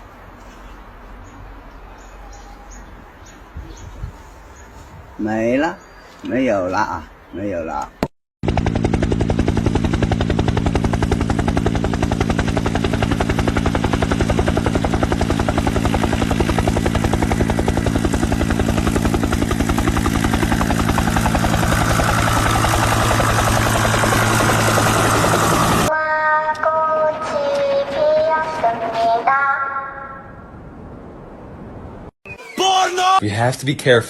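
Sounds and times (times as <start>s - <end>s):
loud pulsing drone: 8.4s - 25.9s
low hum: 8.4s - 25.9s.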